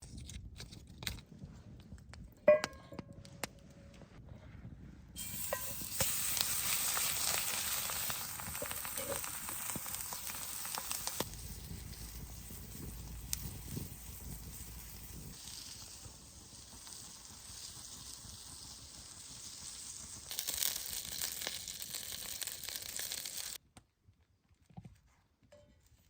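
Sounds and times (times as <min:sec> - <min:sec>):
ringing metal clink: 0:02.5 - 0:03.2
food sizzling in a hot pan: 0:05.2 - 0:23.6.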